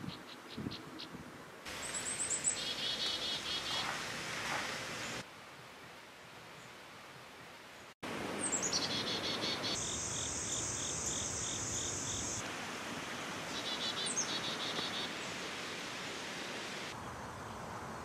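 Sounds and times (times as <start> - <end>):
songbird singing: 0.0 - 4.1, 7.7 - 12.4, 13.2 - 15.4
outdoor background hiss: 0.0 - 18.0.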